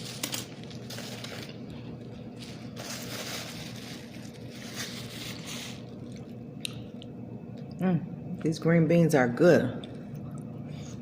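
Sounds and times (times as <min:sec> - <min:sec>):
steady low hum: 0:00.0 - 0:11.0
chewing and crunching: 0:03.5 - 0:07.7.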